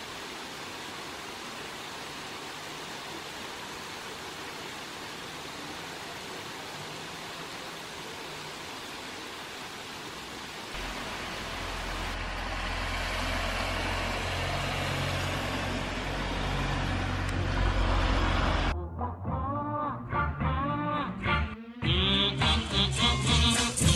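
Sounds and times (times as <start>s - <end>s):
rain hiss: 0.0s - 18.7s
music: 18.7s - 23.9s.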